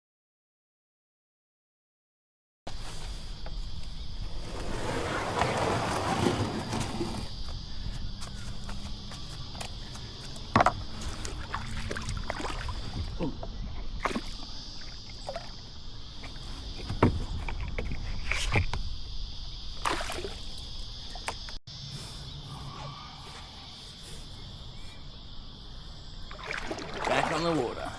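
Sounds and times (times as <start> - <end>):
insect chorus: 2.7 - 27.9
kayak knocks and splashes: 10.5 - 13.2, 14.0 - 15.6, 19.8 - 20.6, 26.3 - 27.7.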